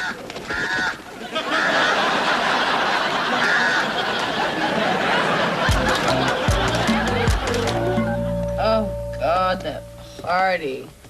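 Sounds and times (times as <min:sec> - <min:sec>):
studio audience laughing: 0:01.2 - 0:08.4.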